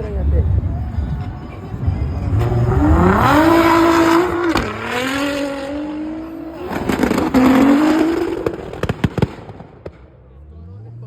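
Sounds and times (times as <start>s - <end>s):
car engine accelerating hard: 0.0s - 11.0s
exhaust crack on upshift: 2.2s - 10.2s.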